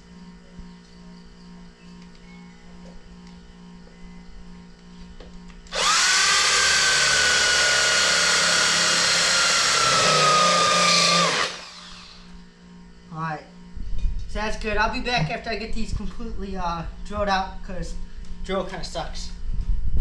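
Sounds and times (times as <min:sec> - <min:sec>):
faint steady hum: 0:00.0 - 0:20.0
power drill boring into metal: 0:05.7 - 0:12.2.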